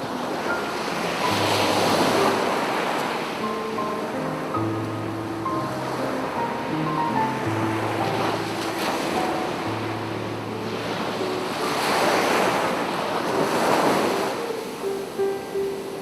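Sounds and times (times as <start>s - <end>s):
sea waves washing onto beach: 0.0s - 16.0s
soft piano notes: 0.0s - 16.0s.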